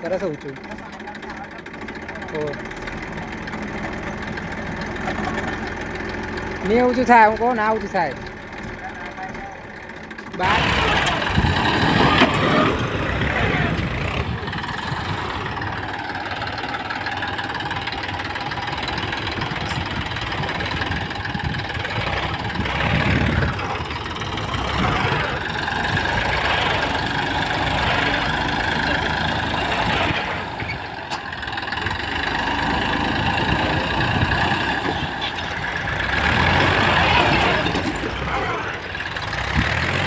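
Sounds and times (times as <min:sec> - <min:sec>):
diesel tractor engines running: 0:00.0 - 0:40.0.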